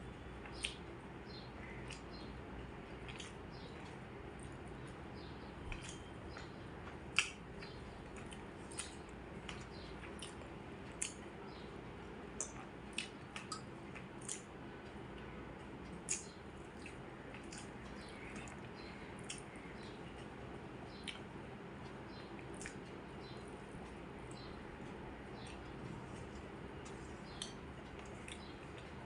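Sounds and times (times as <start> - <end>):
low background hum: 0.0 - 29.0
wet chewing and lip smacks: 3.0 - 4.6, 5.7 - 11.2, 12.4 - 14.5, 15.9 - 19.5, 22.4 - 22.9, 26.3 - 28.9.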